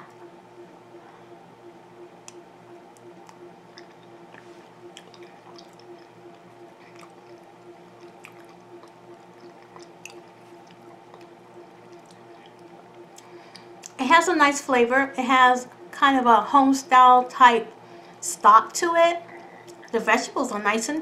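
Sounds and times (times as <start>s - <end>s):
steady low hum: 0.0s - 21.0s
person chewing: 3.2s - 14.0s, 19.2s - 19.9s.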